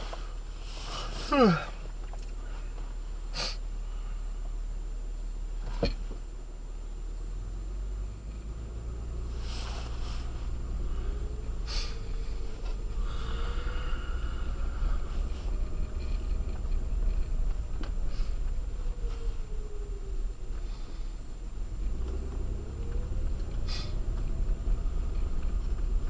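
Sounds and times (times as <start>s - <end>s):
engine and tyre rumble: 0.0s - 26.0s
short rustling noises: 9.2s - 13.0s.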